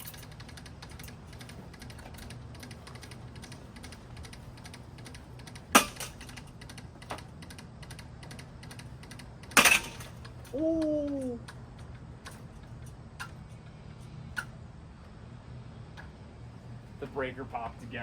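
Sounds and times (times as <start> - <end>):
fast clattering clicks: 0.0 - 10.4
ceiling fan motor hum: 0.0 - 18.0.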